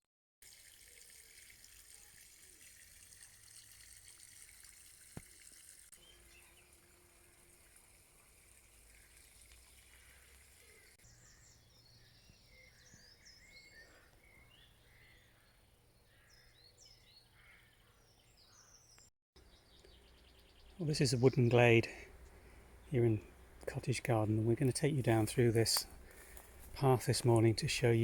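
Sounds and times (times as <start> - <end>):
small birds chirping: 6.0 - 8.0, 8.6 - 28.0.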